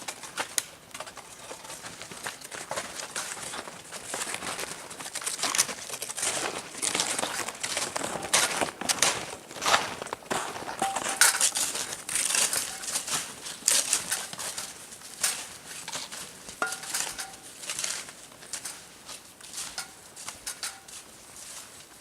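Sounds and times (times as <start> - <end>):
crinkling: 0.0 - 22.0
metal cookware clinking and scraping: 10.8 - 13.0, 16.6 - 17.4, 19.6 - 20.9.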